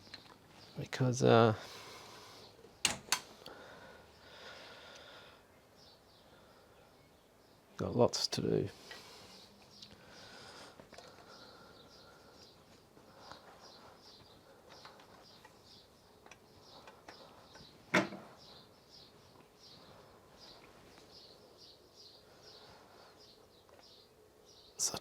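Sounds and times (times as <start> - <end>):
bird chirping: 9.0 - 25.0.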